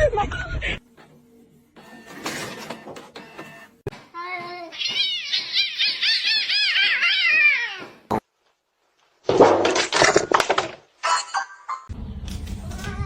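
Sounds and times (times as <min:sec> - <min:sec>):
pet animal high-pitched calls: 0:04.7 - 0:07.9.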